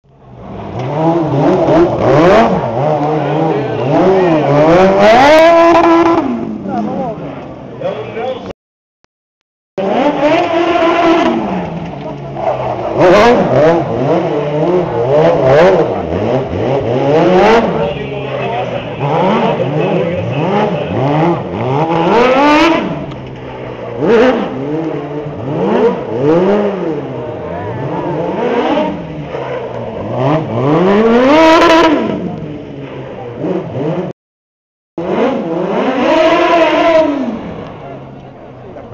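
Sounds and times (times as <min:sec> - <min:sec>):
car engine revving hard: 0:00.4 - 0:07.2, 0:09.8 - 0:32.4, 0:33.3 - 0:34.1, 0:35.0 - 0:38.0.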